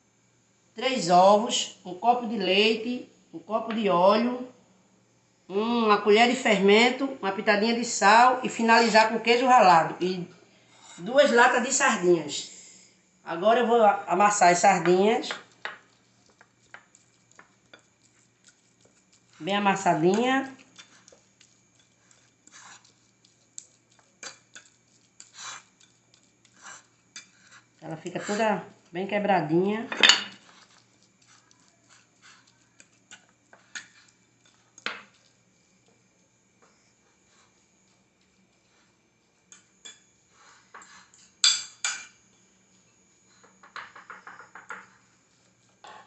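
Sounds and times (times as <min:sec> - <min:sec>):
cutlery scraping a dish: 0:20.7 - 0:23.0, 0:24.0 - 0:28.4, 0:29.9 - 0:32.4, 0:33.1 - 0:35.2, 0:39.5 - 0:42.2.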